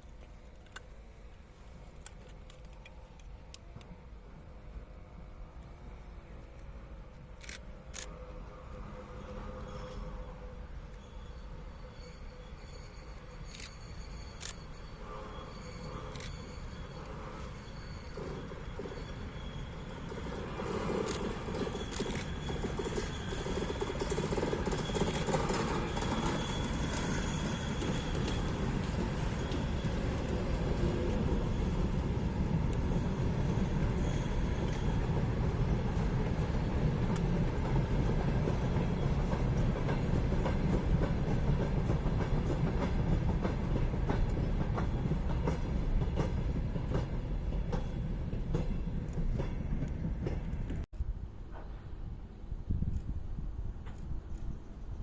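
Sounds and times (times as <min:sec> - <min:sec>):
train rumbling on tracks: 0:00.0 - 0:55.0
wheels clicking over rail joints: 0:20.1 - 0:30.8.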